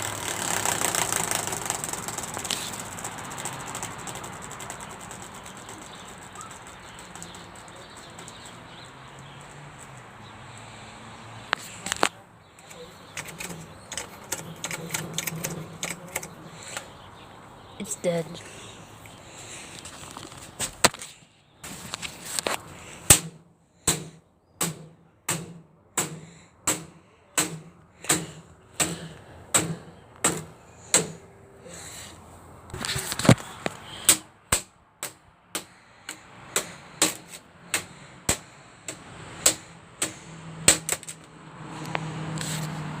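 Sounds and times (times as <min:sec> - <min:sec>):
box fan being smashed: 0:00.0 - 0:06.1, 0:23.0 - 0:31.2, 0:36.6 - 0:38.5, 0:39.4 - 0:41.2.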